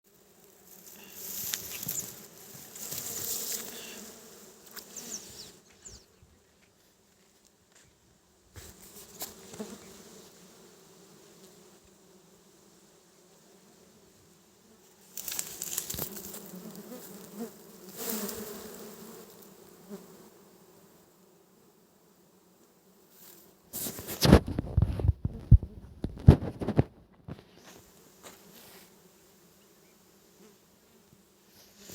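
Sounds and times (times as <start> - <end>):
bees buzzing: 0.4 - 6.1, 14.9 - 20.8
rustling and crackling: 0.6 - 4.0, 15.0 - 17.2, 23.3 - 28.9
rustling close to microphone: 23.7 - 28.9
thumps close to microphone: 23.8 - 27.5.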